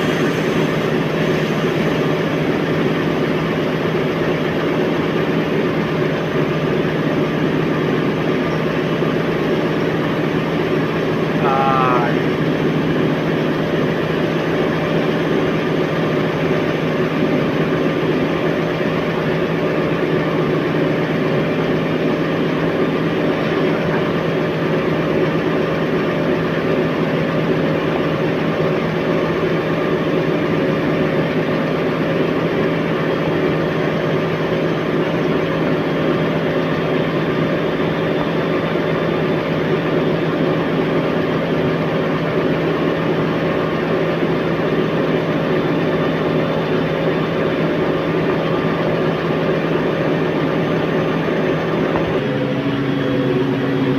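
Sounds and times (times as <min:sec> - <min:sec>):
washing machine motor hum: 0:00.0 - 0:53.9.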